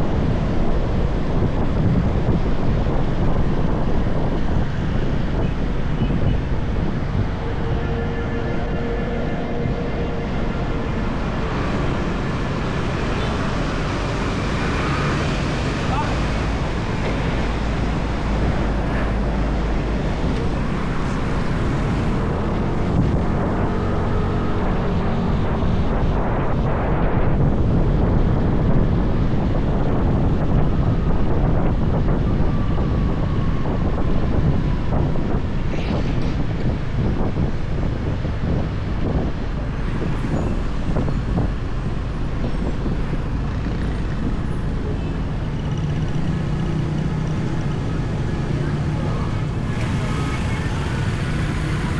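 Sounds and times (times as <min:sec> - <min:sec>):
motorbike engine drone: 0:00.0 - 0:35.7, 0:40.8 - 0:51.9
road and traffic noise: 0:00.0 - 0:51.9
wind rushing over microphone: 0:00.0 - 0:51.9.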